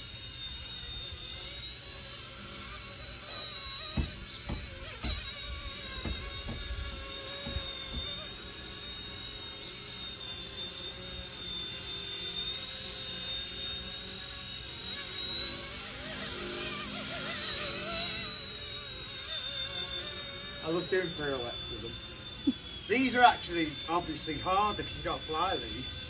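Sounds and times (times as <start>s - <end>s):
model helicopter motor whine: 0.0s - 26.0s.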